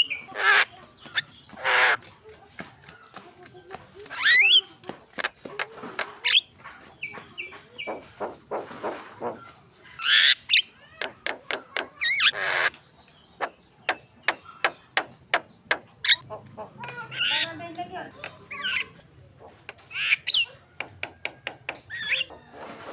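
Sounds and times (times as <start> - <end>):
bird harsh screeching: 0.2 - 0.7, 1.6 - 2.0, 10.0 - 12.7, 15.7 - 17.6, 18.2 - 22.6
bird sharp clicking notes: 4.2 - 6.4, 11.0 - 12.8, 13.4 - 22.4.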